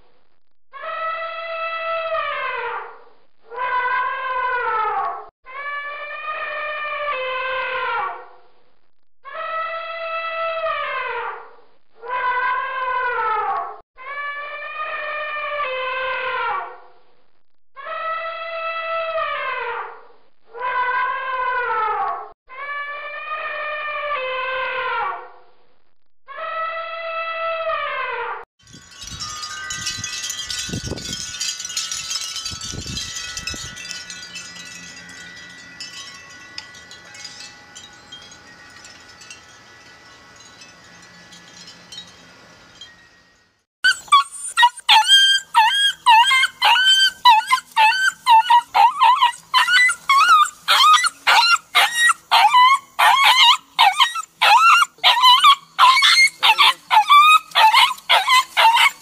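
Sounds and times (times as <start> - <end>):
wind chimes ringing: 28.6 - 59.0.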